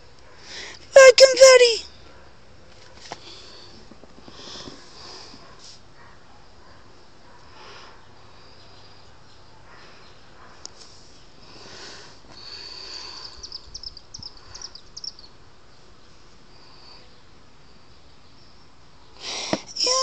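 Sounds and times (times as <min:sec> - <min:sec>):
faint steady hiss: 0:01.8 - 0:20.0
bird chirping: 0:13.2 - 0:15.4.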